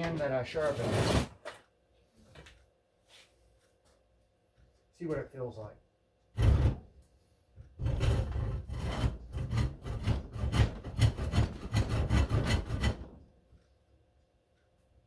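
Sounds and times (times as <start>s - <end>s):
hand saw cutting wood: 0.6s - 1.3s, 7.8s - 13.2s.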